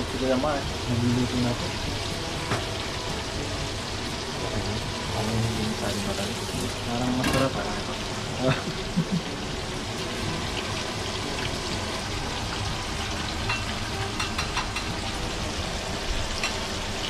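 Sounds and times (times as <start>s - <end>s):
deep-frying sizzle with pops: 0.0s - 17.0s.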